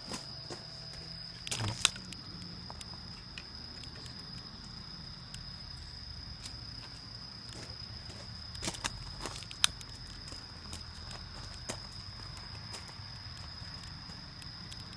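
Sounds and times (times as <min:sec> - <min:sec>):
high-pitched insect trill: 0:00.0 - 0:14.9
sharp clicks: 0:01.3 - 0:04.6, 0:08.5 - 0:14.9.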